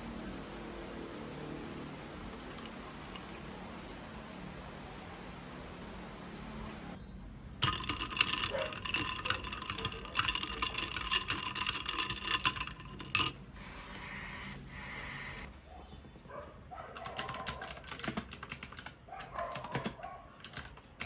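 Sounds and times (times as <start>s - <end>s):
utensil clinking against cup: 7.6s - 13.4s.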